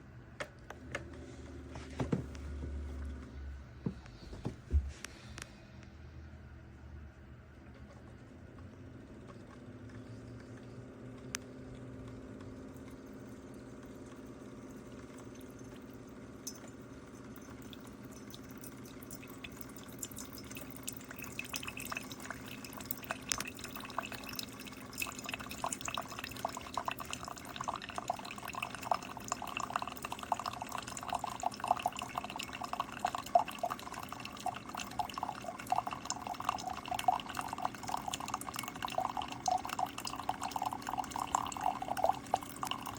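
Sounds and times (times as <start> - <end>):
coffee maker humming: 0.0 - 42.9
coffee dripping into cup: 8.5 - 42.9.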